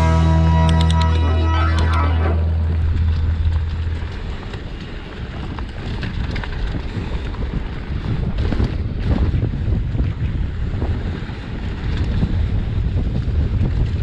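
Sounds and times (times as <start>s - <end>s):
music track: 0.0s - 4.1s
wind buffeting microphone: 0.0s - 14.0s.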